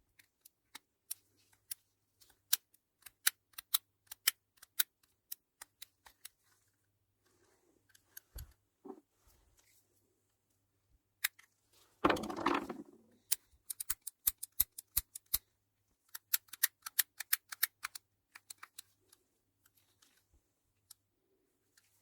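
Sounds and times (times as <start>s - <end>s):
rattling clatter: 12.0s - 13.0s.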